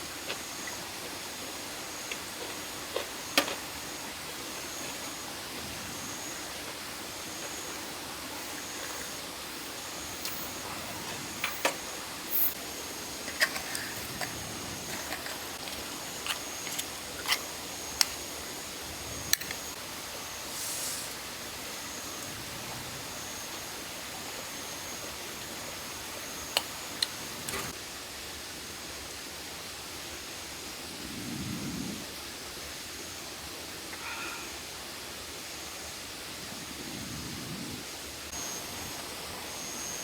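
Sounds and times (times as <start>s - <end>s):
short hiss: 20.5s - 21.2s.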